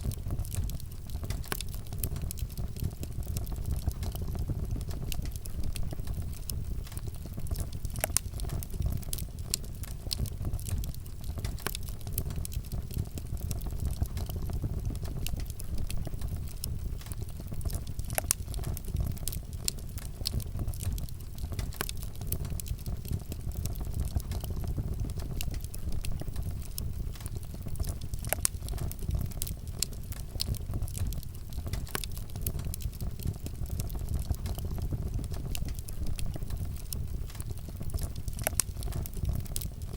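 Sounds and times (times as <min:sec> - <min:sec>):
crackles and pops of burning wood: 0:00.0 - 0:39.9
rumble of flames: 0:00.0 - 0:39.9.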